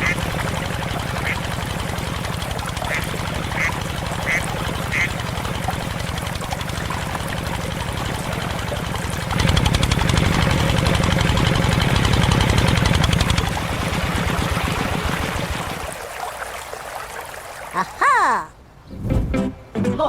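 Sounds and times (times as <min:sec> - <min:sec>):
small engine running: 0:00.0 - 0:15.9.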